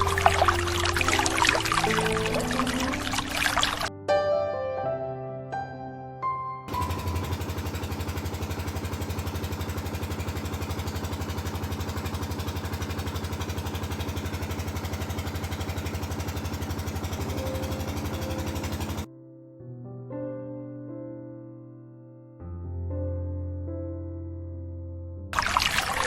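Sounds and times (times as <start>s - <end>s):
tractor engine idling: 0.0s - 3.9s, 6.7s - 19.1s.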